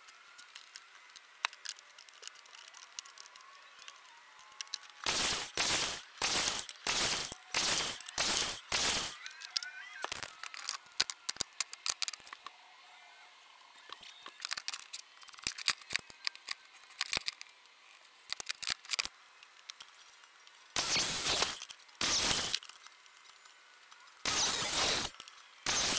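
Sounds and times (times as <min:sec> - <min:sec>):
miter saw cutting wood: 0:05.0 - 0:09.2, 0:20.8 - 0:22.6, 0:24.3 - 0:25.9.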